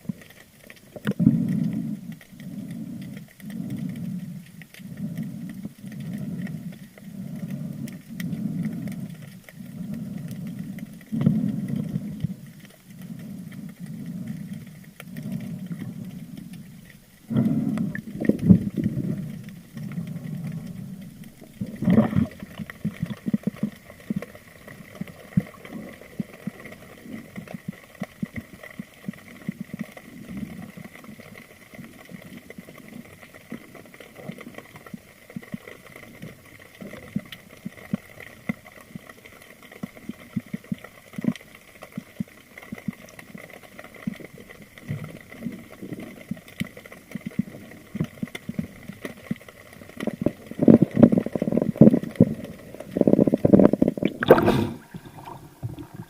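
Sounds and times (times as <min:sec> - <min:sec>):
underwater crackle of clicks: 0:00.0 - 0:56.0
water sloshing and bubbling: 0:00.0 - 0:56.0.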